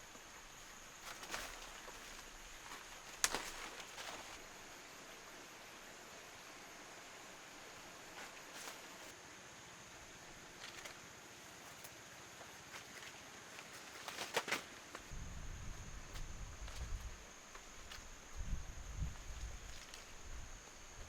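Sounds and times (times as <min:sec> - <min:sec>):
steady high hiss: 0:00.0 - 0:21.0
rustles and snaps: 0:01.0 - 0:04.4, 0:10.6 - 0:11.0, 0:12.6 - 0:15.1.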